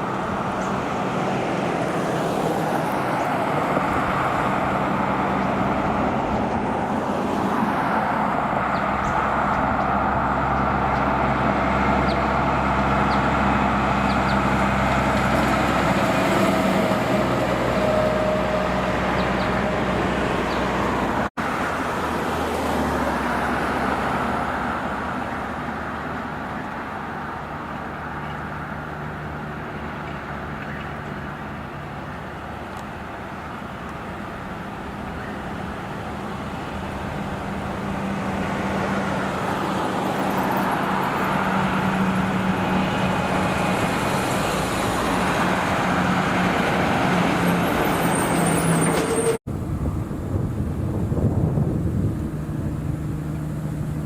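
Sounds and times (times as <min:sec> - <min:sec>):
truck diesel engine: 0:00.0 - 0:54.0
tyres on road: 0:00.0 - 0:54.0.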